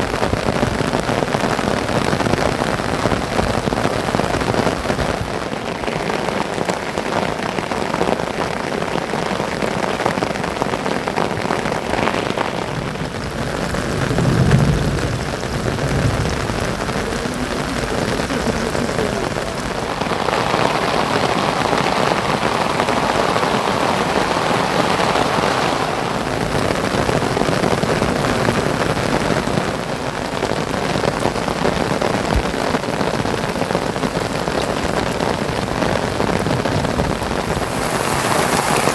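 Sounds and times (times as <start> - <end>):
heavy rain hissing: 0.0 - 38.9
low rumble: 13.3 - 18.9.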